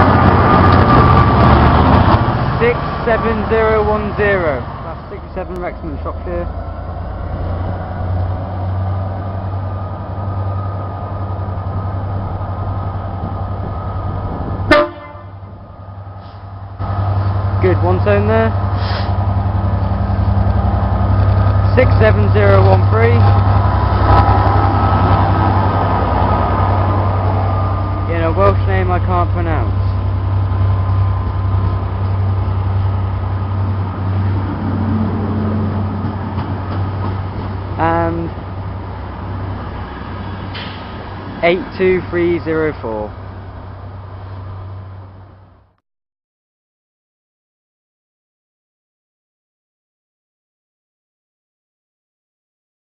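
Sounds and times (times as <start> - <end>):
diesel locomotive passing: 0.0 - 45.8
train horn blast: 14.7 - 15.5.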